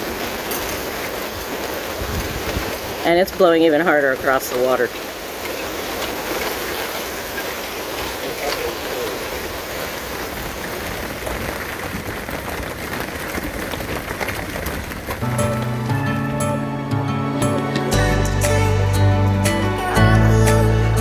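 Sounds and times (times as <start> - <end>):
storm wind over water: 0.0 - 15.2
rain falling: 0.0 - 21.0.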